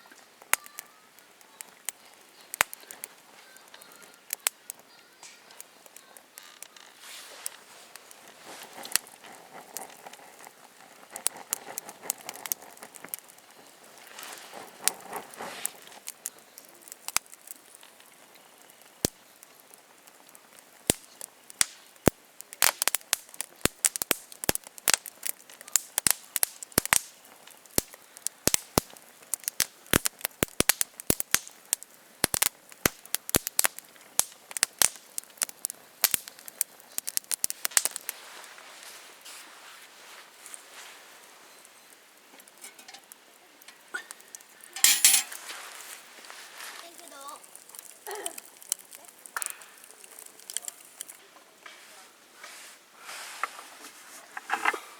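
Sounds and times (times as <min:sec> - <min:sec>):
campfire crackling and popping: 0:00.0 - 0:52.7, 0:53.4 - 0:54.9
soft rustling: 0:01.6 - 0:16.5, 0:37.6 - 0:43.2, 0:44.8 - 0:49.1, 0:49.8 - 0:54.9.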